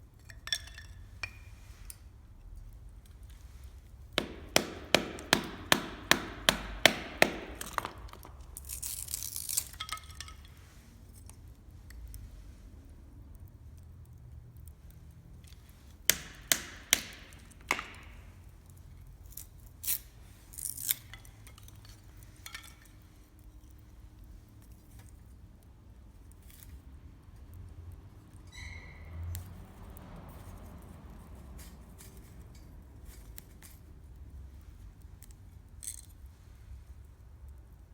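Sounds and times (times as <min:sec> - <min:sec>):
sharp knocks: 0:04.2 - 0:08.3, 0:16.1 - 0:18.3.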